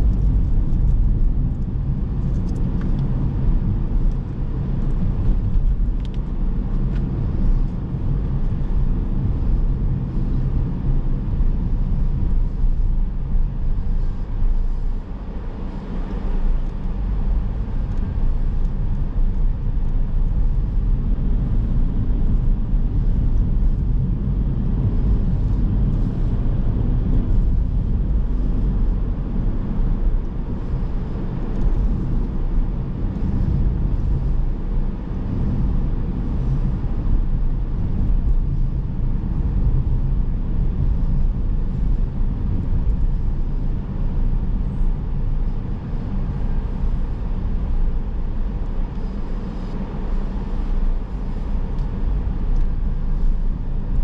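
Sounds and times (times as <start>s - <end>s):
car tyres and engine rumble: 0.0s - 54.0s.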